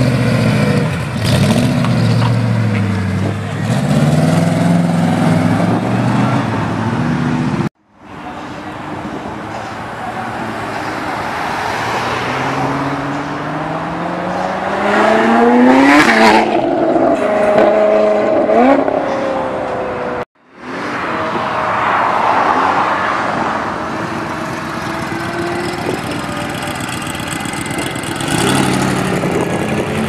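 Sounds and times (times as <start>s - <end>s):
car engine pulling away: 0.0s - 7.6s, 24.0s - 30.0s.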